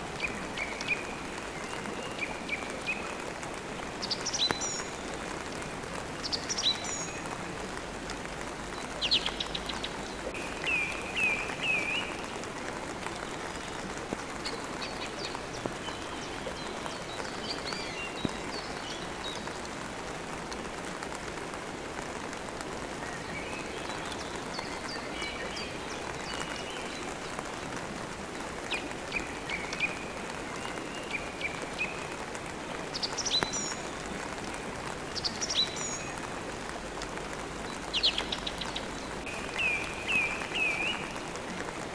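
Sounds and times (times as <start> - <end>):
steady rain falling: 0.0 - 41.9
birds chirping: 37.7 - 41.3.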